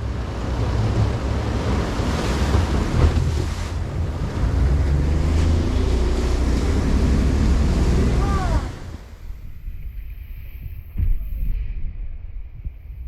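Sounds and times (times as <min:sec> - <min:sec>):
outboard motor running: 0:00.0 - 0:09.5
water rushing past boat: 0:00.0 - 0:11.6
wind buffeting microphone: 0:00.0 - 0:13.0.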